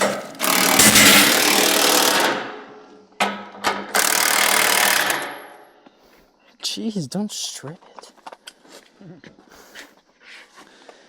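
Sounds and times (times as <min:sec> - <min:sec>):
power tool tightening a bolt: 0:00.0 - 0:02.4, 0:03.9 - 0:05.4.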